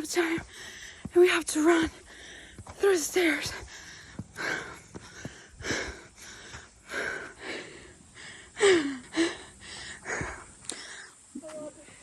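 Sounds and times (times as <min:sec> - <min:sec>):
person panting: 0:00.0 - 0:12.0
voiced gasps: 0:00.4 - 0:01.1, 0:01.9 - 0:02.7, 0:03.5 - 0:11.2.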